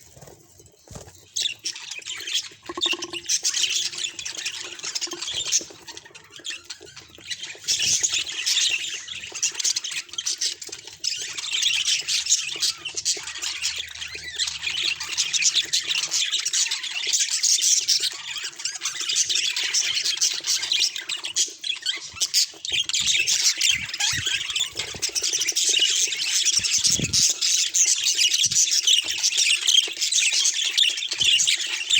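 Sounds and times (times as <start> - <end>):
budgerigar warbling: 2.7 - 3.2.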